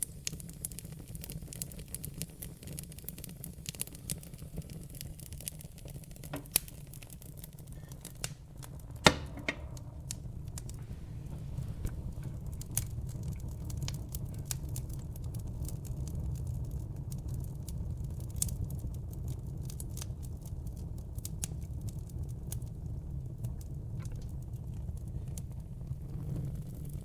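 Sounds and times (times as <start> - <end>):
wood fire crackling and popping: 0.0 - 27.0
low rumble: 8.5 - 15.1.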